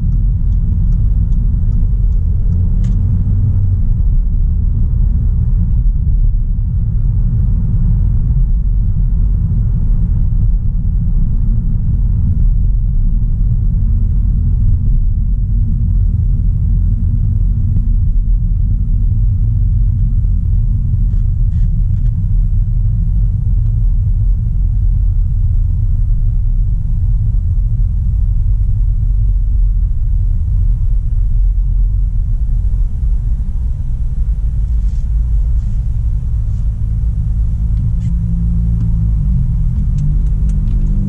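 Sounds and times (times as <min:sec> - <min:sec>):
car engine rumbling: 0:00.0 - 0:41.0
tyre and road noise: 0:00.0 - 0:41.0.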